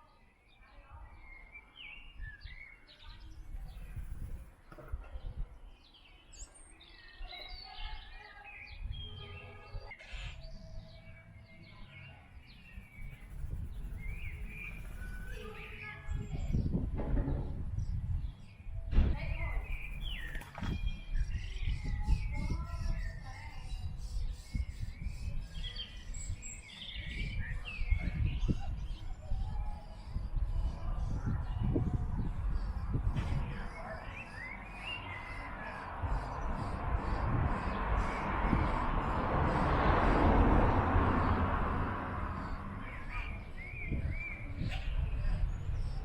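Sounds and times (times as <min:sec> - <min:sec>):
small birds chirping: 0:00.0 - 0:46.0
steady low rumble: 0:35.8 - 0:46.0.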